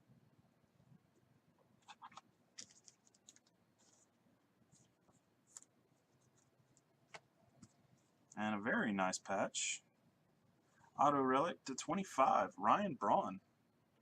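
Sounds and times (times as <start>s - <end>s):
trading cards clicking and rustling: 1.8s - 4.0s.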